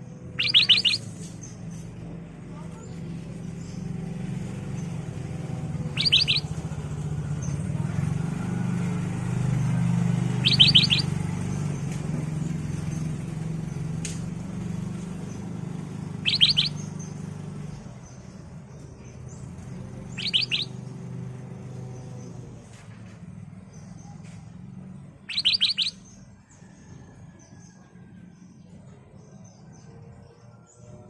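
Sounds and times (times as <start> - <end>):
bird calling in quick high notes: 0.4 - 1.3, 6.0 - 6.5, 10.4 - 11.1, 16.2 - 16.8, 20.1 - 20.7, 25.3 - 26.0.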